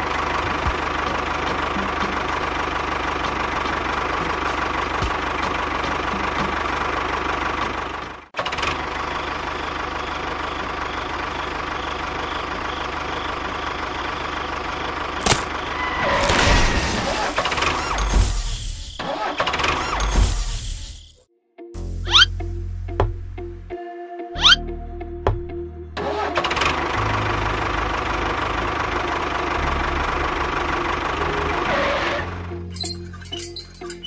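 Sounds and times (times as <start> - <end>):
tractor engine idling: 0.0 - 15.9, 26.0 - 34.0.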